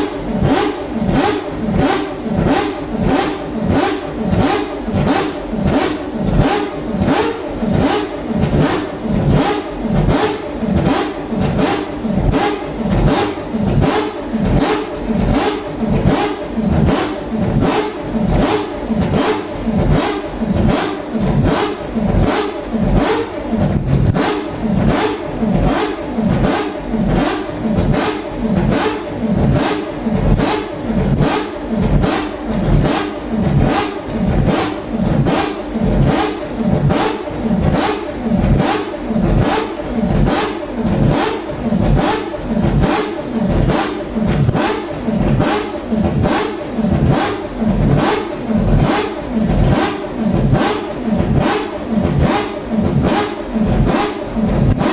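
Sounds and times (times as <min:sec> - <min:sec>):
rotary engine throttle blips: 0:00.0 - 0:54.9.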